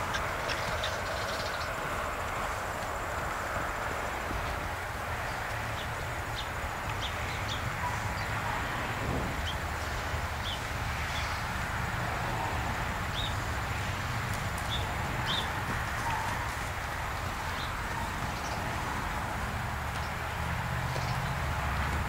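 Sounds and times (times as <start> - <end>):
small birds chirping: 0.0 - 3.4, 4.4 - 8.6, 13.0 - 13.5, 14.3 - 19.2, 19.9 - 22.0
steady outdoor rumble: 0.0 - 22.0.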